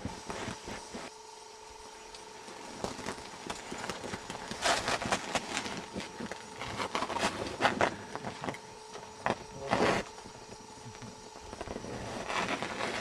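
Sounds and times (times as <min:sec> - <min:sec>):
shovels scraping packed snow: 0:02.8 - 0:08.6, 0:09.2 - 0:10.2, 0:11.5 - 0:13.0.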